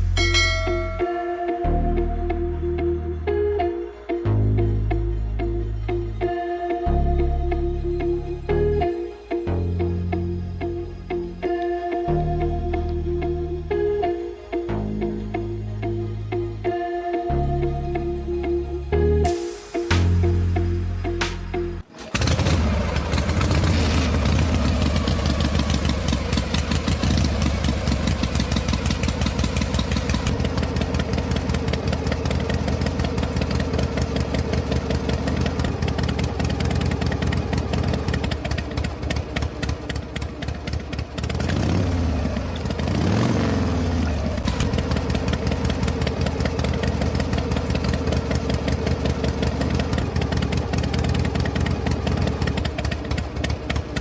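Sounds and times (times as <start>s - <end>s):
model diesel engine running: 22.0s - 54.0s.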